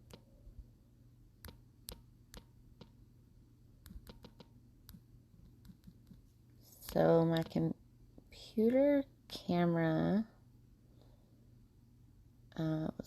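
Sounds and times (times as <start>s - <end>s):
light clicks and taps: 3.8s - 7.6s.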